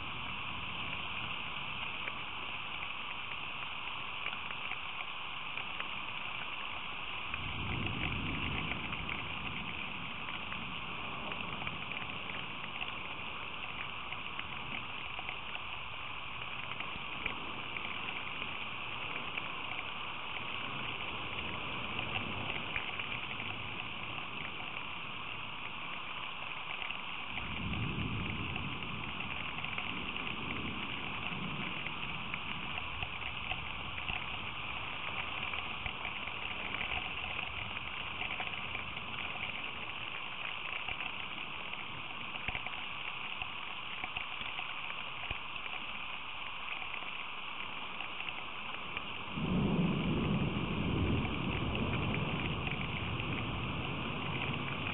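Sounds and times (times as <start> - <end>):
rain hiss: 0.0 - 54.9
thunder rumbling: 7.2 - 26.0, 26.7 - 42.8, 48.9 - 54.9.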